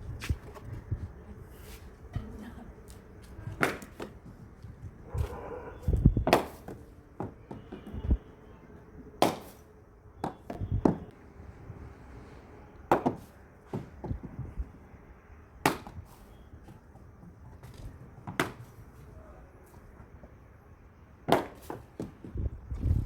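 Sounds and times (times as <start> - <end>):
cricket bat striking ball: 3.6 - 4.2, 6.2 - 8.0, 9.2 - 9.6, 10.2 - 11.1, 12.9 - 14.4, 15.6 - 16.2, 18.2 - 18.8, 21.2 - 22.4.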